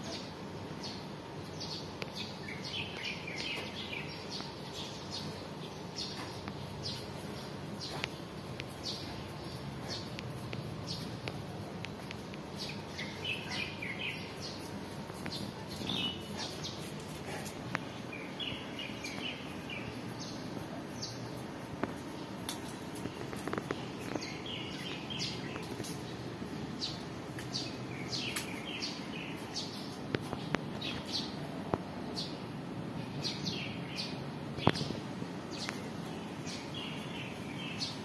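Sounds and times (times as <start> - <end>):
birds chirping: 0.0 - 38.0
outdoor background noise: 0.0 - 38.0.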